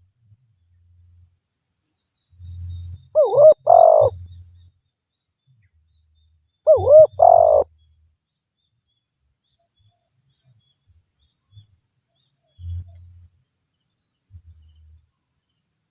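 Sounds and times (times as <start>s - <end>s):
dove cooing: 3.2s - 4.2s, 6.7s - 7.7s.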